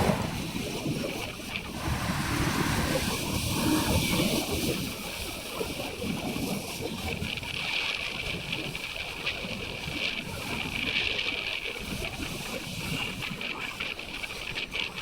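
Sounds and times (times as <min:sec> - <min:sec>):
motorcycle rumble: 0:00.0 - 0:00.9, 0:01.7 - 0:05.1
wind rushing over microphone: 0:00.0 - 0:05.2.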